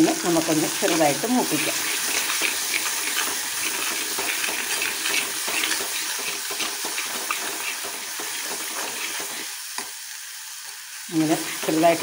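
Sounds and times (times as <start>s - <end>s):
spice paste sizzling in oil: 0.0s - 12.0s
spoon scraping a pan: 0.4s - 9.5s.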